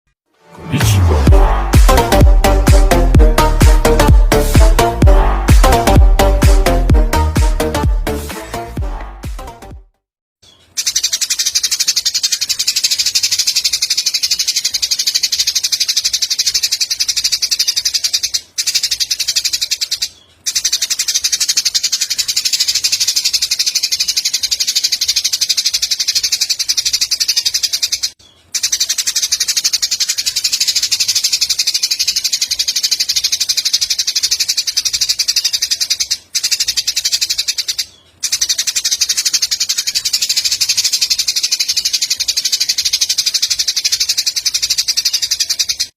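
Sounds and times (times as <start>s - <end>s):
sparrows chattering trill: 10.4s - 45.9s.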